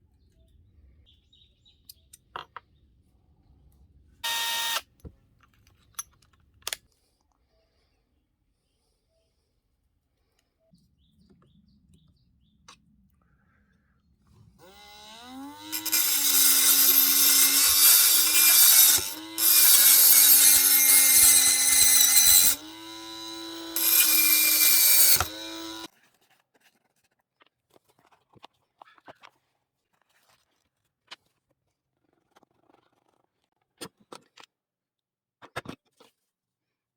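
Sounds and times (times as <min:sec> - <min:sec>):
electric motor whine: 0:04.2 - 0:04.8, 0:14.6 - 0:25.9
tool grinding under load: 0:14.6 - 0:25.9.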